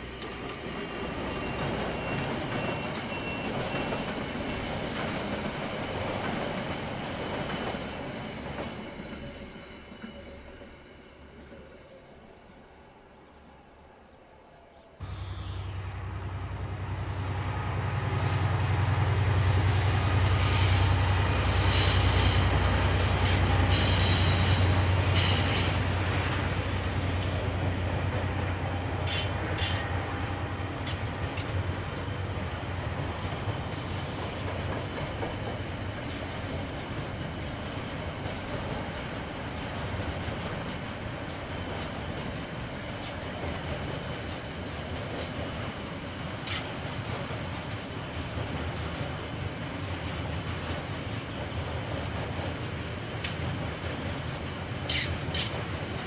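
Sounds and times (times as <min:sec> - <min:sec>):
diesel train engine drone: 0:00.0 - 0:56.0
high wheel squeals: 0:01.2 - 0:04.1, 0:15.0 - 0:26.0.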